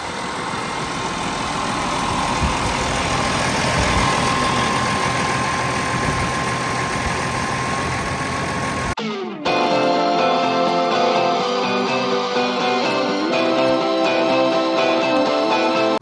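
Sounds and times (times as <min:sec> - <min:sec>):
thin steady whine: 0:00.0 - 0:09.0
engine running: 0:00.0 - 0:16.0.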